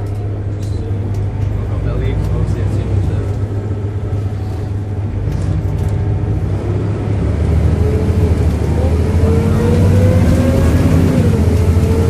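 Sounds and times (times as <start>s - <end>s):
bus diesel engine accelerating: 0.0s - 12.0s
groaning whine rising in pitch: 5.2s - 12.0s.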